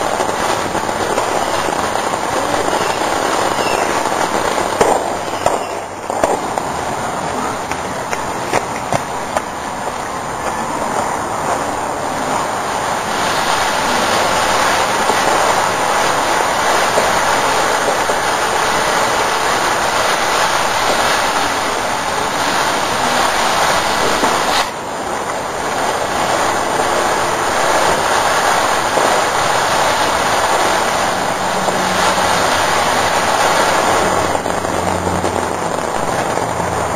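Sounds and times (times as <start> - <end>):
firework fountain hissing and crackling: 0.0 - 36.9.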